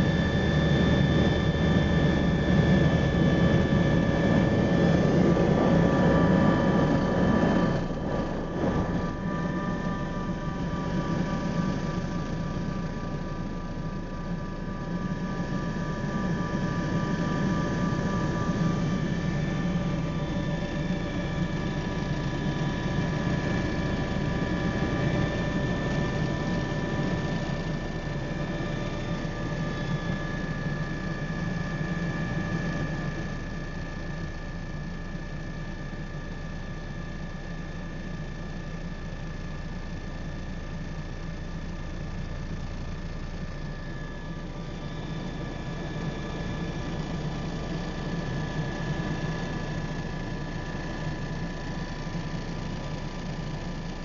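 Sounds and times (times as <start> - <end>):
helicopter rotor and engine noise: 0.0 - 54.0
helicopter turbine whine: 0.0 - 54.0.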